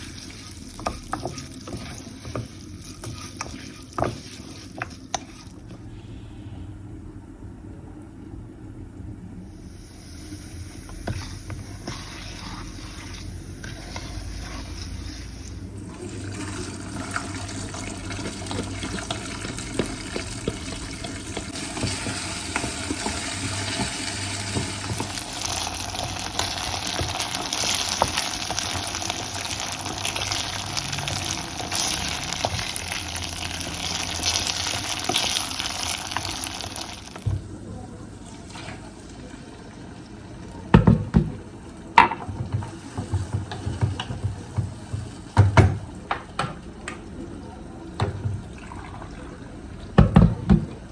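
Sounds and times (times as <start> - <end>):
tap water running into sink: 15.9 - 32.9.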